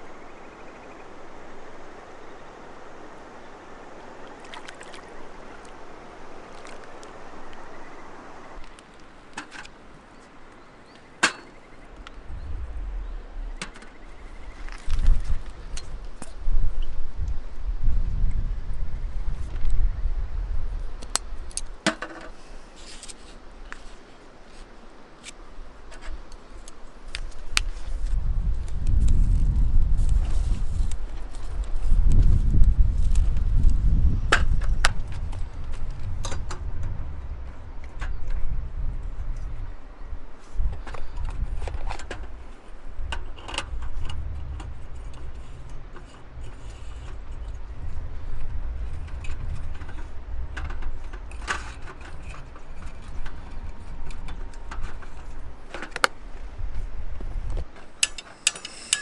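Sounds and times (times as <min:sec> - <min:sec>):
river water flowing: 0:00.0 - 0:16.5
wind rumbling on microphone: 0:00.0 - 0:59.0
ringing clink: 0:58.0 - 0:59.0.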